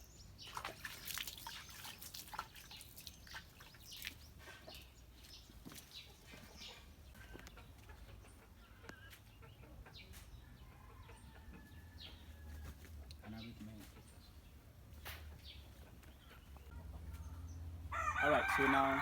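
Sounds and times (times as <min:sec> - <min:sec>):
birds calling and clucking: 0:00.0 - 0:19.0
water dripping and splashing: 0:00.3 - 0:06.7.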